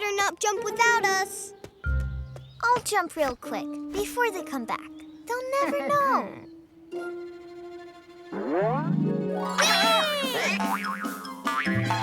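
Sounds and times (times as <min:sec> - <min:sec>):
playful background music: 0:00.0 - 0:12.0
cartoon spring boing: 0:08.3 - 0:12.0.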